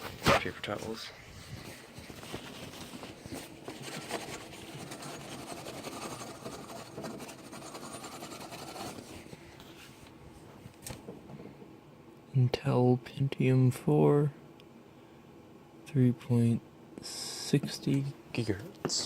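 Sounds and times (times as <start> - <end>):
paper towel rustling: 0.0 - 10.1.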